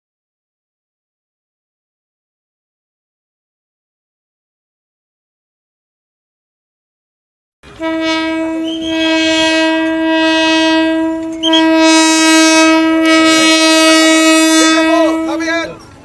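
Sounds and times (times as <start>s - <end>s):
train horn blasts: 7.7s - 15.8s.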